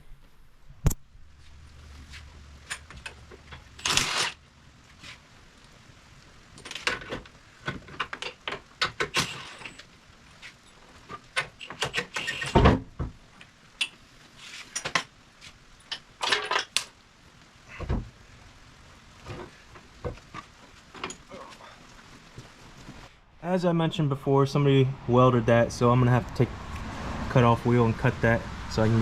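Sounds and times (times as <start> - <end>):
metal tools clanking and scraping: 15.8 - 16.8.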